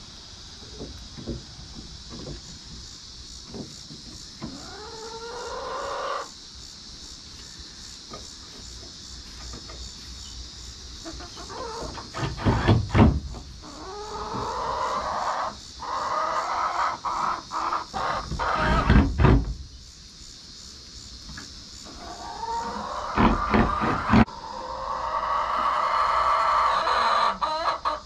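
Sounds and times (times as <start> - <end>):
chickens calling: 4.0 - 6.3, 11.0 - 19.4, 21.8 - 28.0
loud knocks and thumps: 12.1 - 13.5, 18.6 - 19.7, 23.2 - 24.3.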